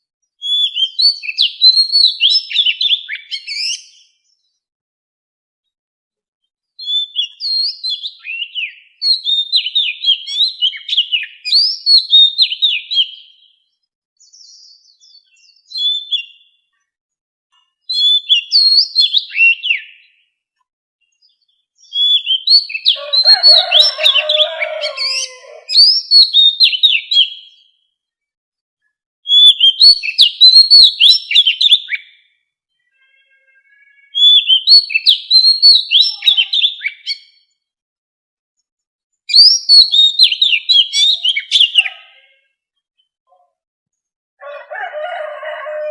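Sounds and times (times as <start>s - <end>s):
bird singing whistled notes: 0.4s - 4.2s, 6.8s - 13.6s, 14.2s - 16.6s, 17.9s - 20.2s, 21.2s - 27.8s, 29.3s - 32.2s, 34.1s - 37.5s, 39.3s - 41.9s.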